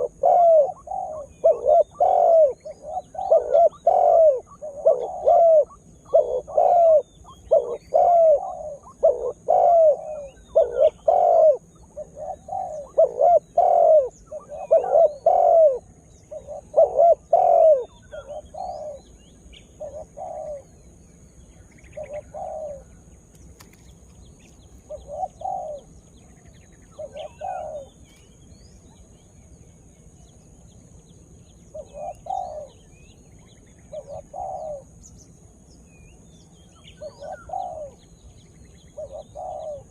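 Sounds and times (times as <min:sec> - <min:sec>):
dove cooing: 0:00.0 - 0:20.8, 0:21.8 - 0:23.0, 0:24.4 - 0:28.1, 0:31.7 - 0:35.0, 0:37.0 - 0:38.1, 0:38.9 - 0:39.9.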